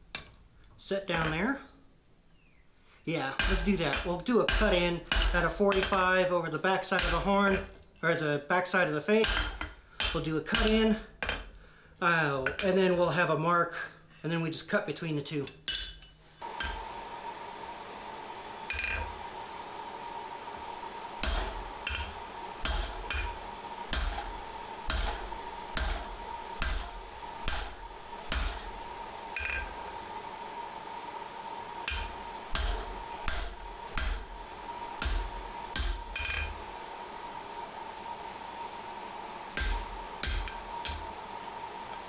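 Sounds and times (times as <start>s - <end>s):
steady high hum: 0.0s - 15.1s, 15.7s - 42.0s
hammer striking chisel on steel: 3.4s - 6.0s, 7.0s - 7.7s, 9.2s - 11.5s, 21.2s - 28.8s, 29.4s - 29.8s, 31.9s - 34.2s, 35.0s - 36.6s, 39.6s - 41.0s.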